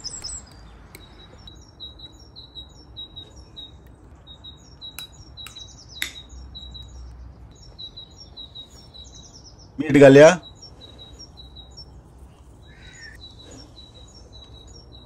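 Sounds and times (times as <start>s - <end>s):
small birds chirping: 0.0s - 15.0s
sharp clicks: 5.0s - 6.3s.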